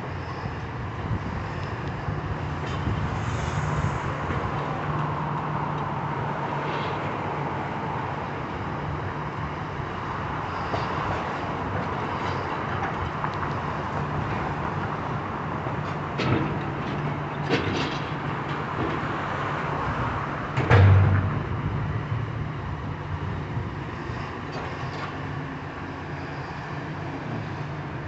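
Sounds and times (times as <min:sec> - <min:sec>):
engine rumbling: 0:13.8 - 0:28.0.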